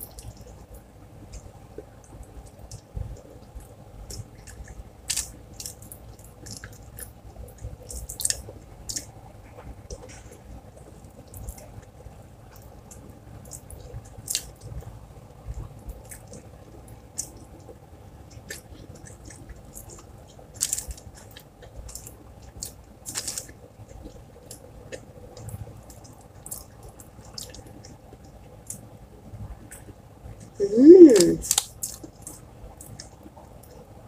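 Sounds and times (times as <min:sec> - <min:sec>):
wet chewing and lip smacks: 0:15.9 - 0:28.8, 0:31.2 - 0:33.8.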